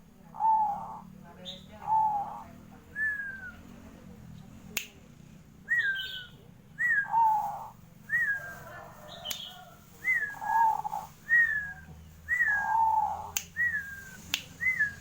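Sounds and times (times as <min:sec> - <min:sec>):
dove cooing: 0:00.3 - 0:03.5, 0:06.8 - 0:15.0.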